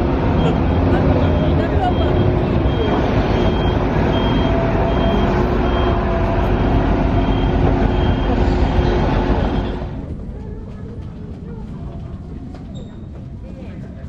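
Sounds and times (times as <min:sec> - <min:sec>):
loud steady rumbling: 0:00.0 - 0:12.5
high-pitched warning beep: 0:00.4 - 0:06.1, 0:07.0 - 0:09.8.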